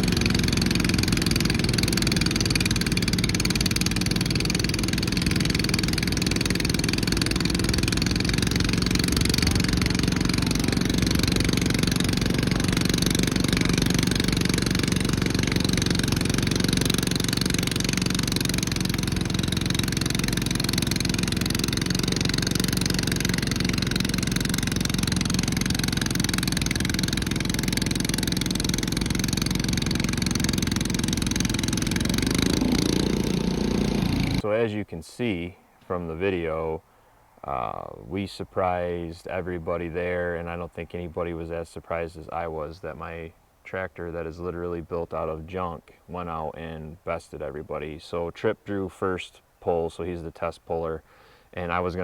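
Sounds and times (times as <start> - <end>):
tractor engine running hard: 0.0 - 34.4.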